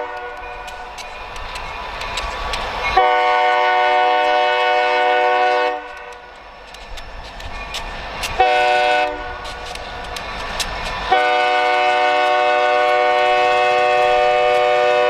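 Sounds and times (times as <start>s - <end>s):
locomotive air horn: 0.0s - 0.5s, 3.0s - 6.2s, 8.4s - 9.5s, 11.1s - 15.0s
train running: 0.0s - 15.0s.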